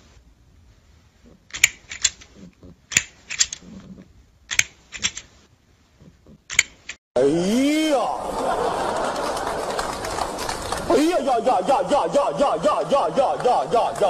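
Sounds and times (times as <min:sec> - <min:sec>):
plastic toy clacking: 0:01.5 - 0:02.3, 0:02.9 - 0:03.7, 0:04.5 - 0:05.3, 0:06.5 - 0:07.0.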